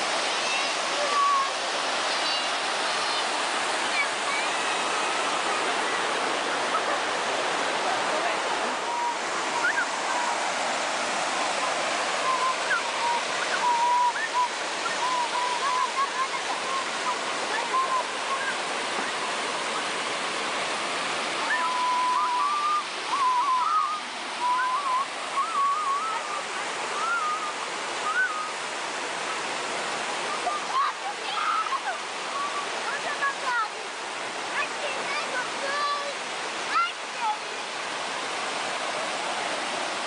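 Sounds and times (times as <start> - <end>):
waterfall rushing: 0.0 - 40.0
thin wavering high tone: 21.4 - 26.3.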